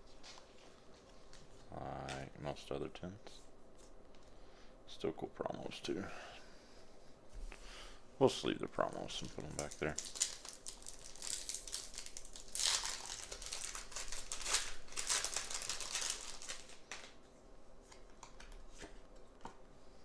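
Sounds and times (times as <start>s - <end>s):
plastic packaging crinkling: 8.8s - 17.2s.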